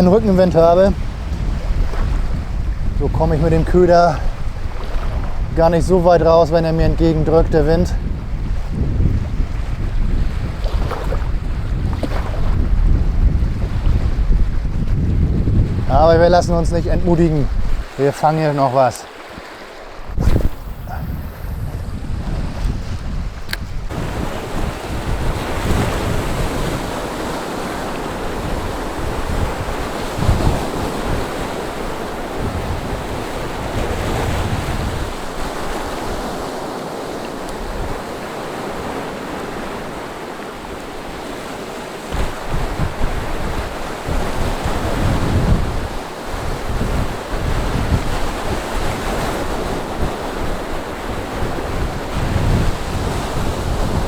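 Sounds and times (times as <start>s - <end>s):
sea waves washing ashore: 0.0s - 54.0s
wind buffeting microphone: 0.0s - 54.0s.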